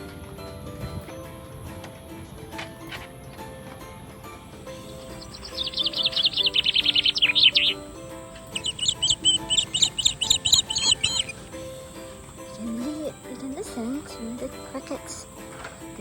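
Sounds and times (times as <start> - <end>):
soft background music: 0.0 - 16.0
bird chirping: 4.6 - 16.0.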